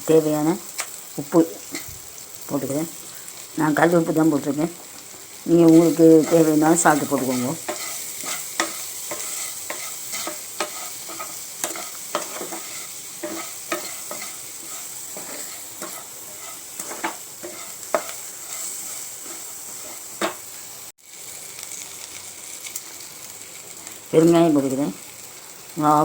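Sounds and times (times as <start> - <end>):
shallots sizzling in a pan: 0.0 - 26.0
spoon scraping against pan: 5.6 - 20.5.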